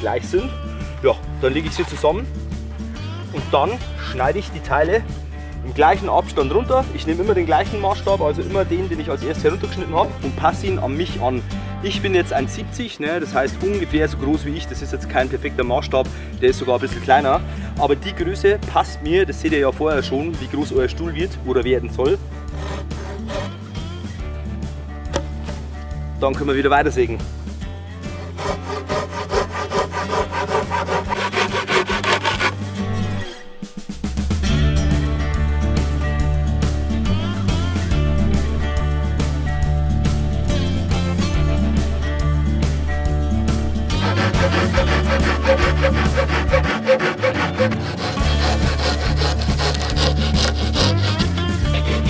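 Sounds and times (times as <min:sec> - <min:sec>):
background music: 0:00.0 - 0:52.0
hand saw cutting a log: 0:22.5 - 0:23.7, 0:28.1 - 0:33.5, 0:43.9 - 0:52.0.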